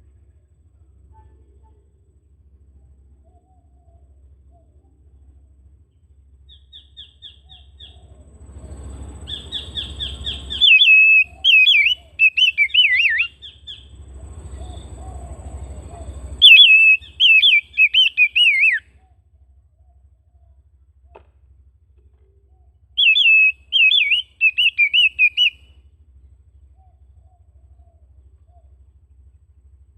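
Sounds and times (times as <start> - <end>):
bird singing whistled phrases: 6.5 - 8.0, 9.2 - 13.9, 14.5 - 19.1, 23.0 - 25.7.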